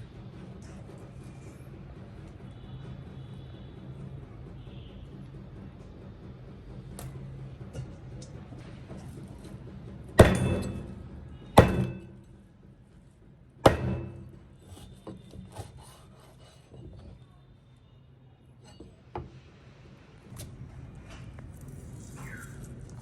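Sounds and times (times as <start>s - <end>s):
sharp ringing knocks: 10.2s - 12.4s, 13.6s - 14.8s.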